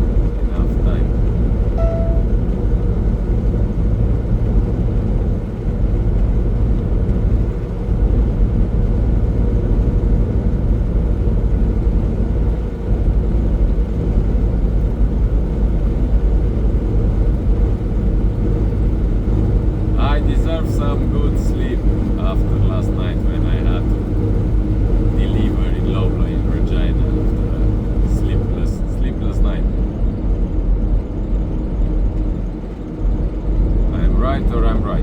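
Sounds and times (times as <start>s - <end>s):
truck engine droning in cab: 0.0s - 35.0s
faint beep: 1.8s - 2.5s.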